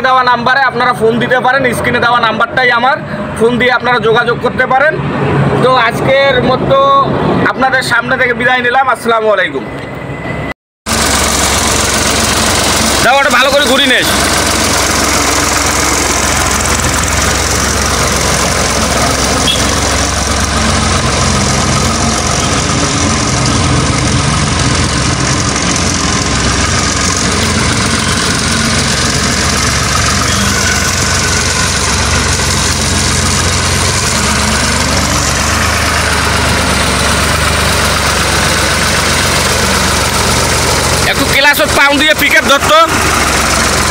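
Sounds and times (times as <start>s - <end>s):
tractor diesel engine running: 10.9s - 43.9s.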